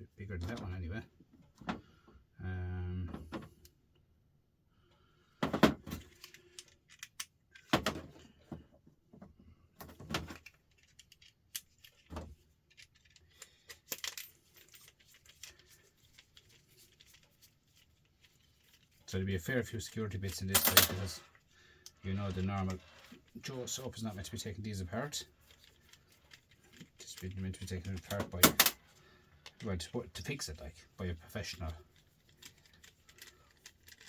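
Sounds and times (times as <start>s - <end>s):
metal bits clinking and rattling: 10.4s - 19.0s, 19.8s - 21.4s, 31.9s - 34.0s.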